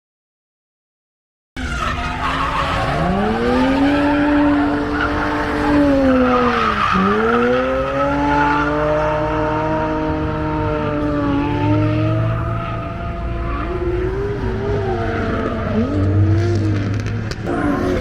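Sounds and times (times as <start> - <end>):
tyres squealing: 1.6 - 7.7
car engine revving hard: 1.6 - 18.0.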